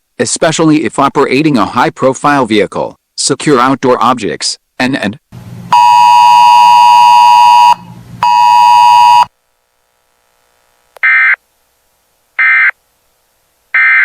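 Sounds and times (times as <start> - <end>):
data modem warble bursts: 5.7 - 9.3, 12.4 - 12.8, 13.7 - 14.0.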